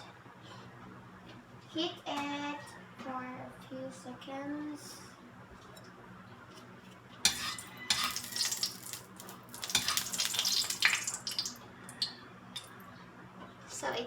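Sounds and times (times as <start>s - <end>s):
metal utensil scraping a pan: 7.3s - 11.4s.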